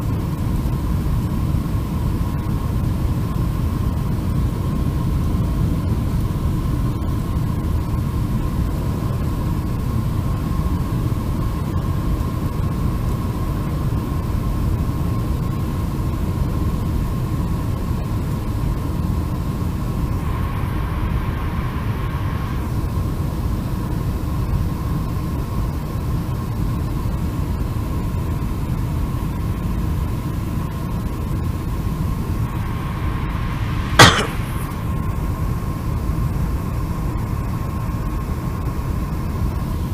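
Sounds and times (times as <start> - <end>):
faint whine-like tone: 16.9 - 24.8, 28.7 - 39.9
jet engines rumbling: 20.0 - 23.8, 31.1 - 37.5
sharp knock: 34.0 - 34.8.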